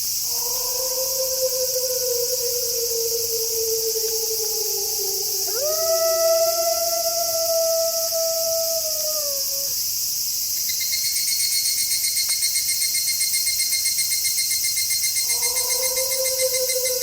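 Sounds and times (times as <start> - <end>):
fast pulsing insect trill: 0.0 - 17.0
insects chirping: 0.0 - 17.0
wolf howling: 0.2 - 9.8, 15.2 - 17.0.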